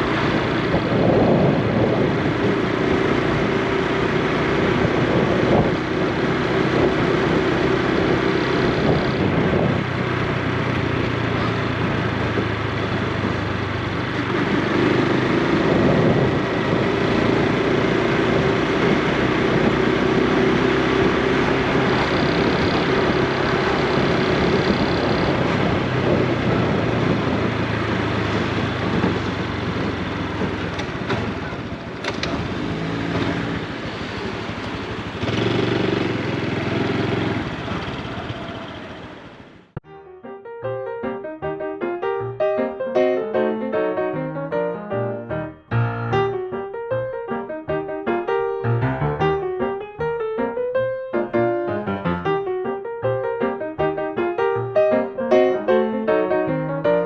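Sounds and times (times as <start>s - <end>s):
motorcycle engine running: 0.0s - 39.8s
wind and road noise: 0.0s - 39.8s.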